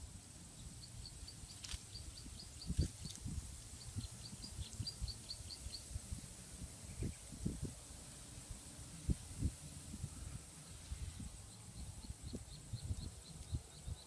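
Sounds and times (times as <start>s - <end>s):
small bird chirping: 0.5s - 6.0s, 6.8s - 7.4s, 10.0s - 14.0s.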